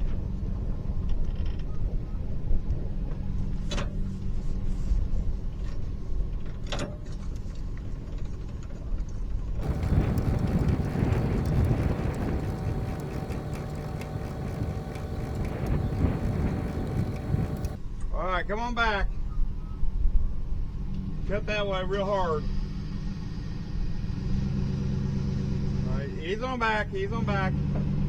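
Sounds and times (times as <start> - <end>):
loud even rumbling: 9.6 - 17.8
sharp clicks: 9.6 - 17.8
truck engine running: 9.6 - 17.8.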